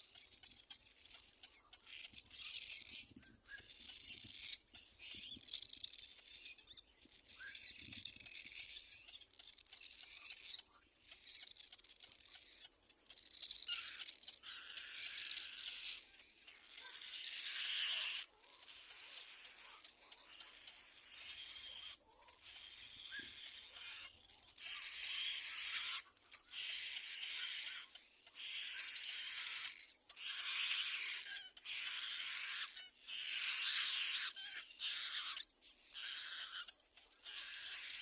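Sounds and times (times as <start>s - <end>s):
bird chick hoarse hissing cries: 23.1s - 38.0s.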